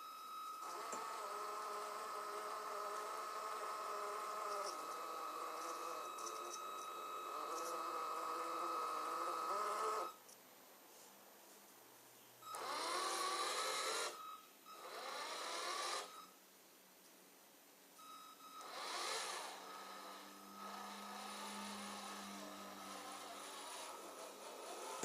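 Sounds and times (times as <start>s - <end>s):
electric motor whining: 0.6s - 10.2s, 12.5s - 14.2s, 14.8s - 16.2s, 18.6s - 25.0s.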